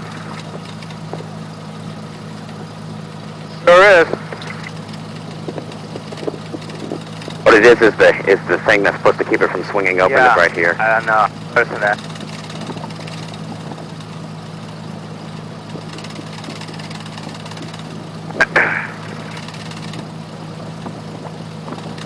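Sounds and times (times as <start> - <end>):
aircraft engine humming: 0.0 - 22.0
intercom click and crackle: 3.6 - 13.3, 17.6 - 20.2.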